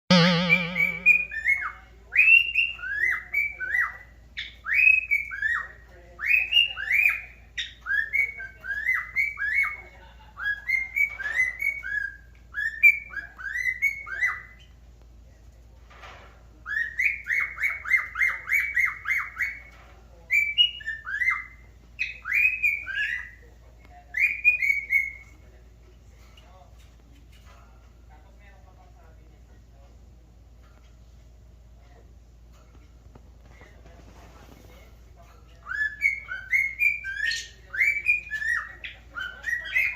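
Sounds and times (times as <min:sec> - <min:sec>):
cockatiel whistling: 0:00.1 - 0:01.4.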